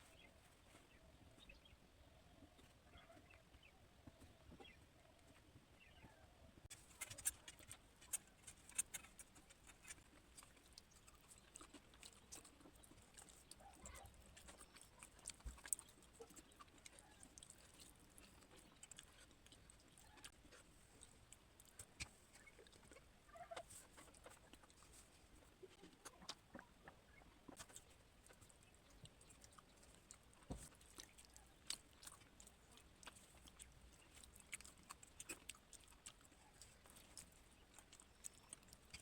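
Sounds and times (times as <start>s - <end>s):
person eating: 7.0s - 23.1s, 27.5s - 39.0s.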